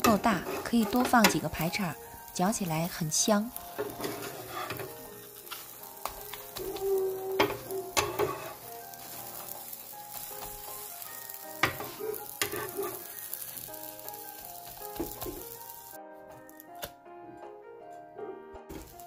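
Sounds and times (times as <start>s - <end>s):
metal spatula clacking and scraping: 0.0s - 1.7s, 3.7s - 6.7s, 7.4s - 9.6s, 11.6s - 13.1s
crepe sizzling on a griddle: 0.0s - 16.6s.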